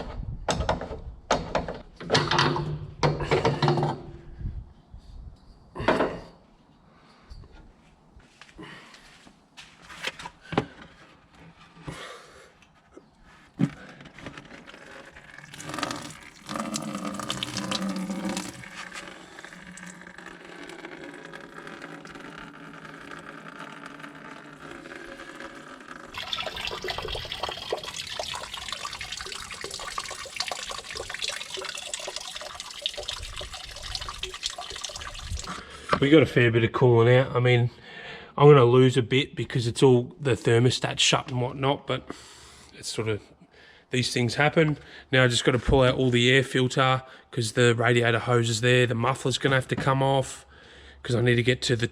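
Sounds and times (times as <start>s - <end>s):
coolant pouring and splashing: 15.1s - 24.2s, 25.2s - 35.5s.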